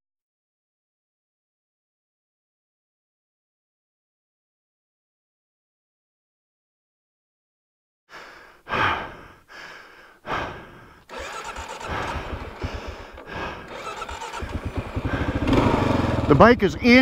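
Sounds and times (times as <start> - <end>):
heavy breathing into microphone: 8.1 - 16.2
motorcycle engine starting and running: 11.0 - 17.0.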